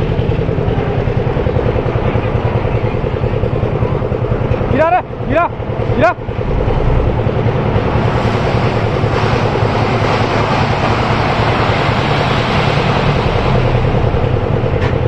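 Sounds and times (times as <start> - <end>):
diesel engine rumbling: 0.0 - 15.0
loud rushing noise: 5.9 - 14.8.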